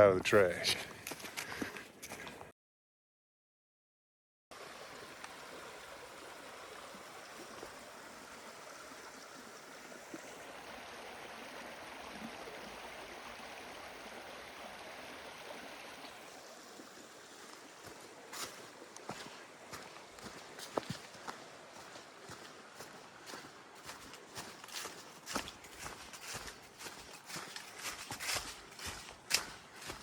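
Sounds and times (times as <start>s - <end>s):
footsteps: 0.1s - 2.5s, 17.5s - 30.0s
stream running: 4.5s - 30.0s.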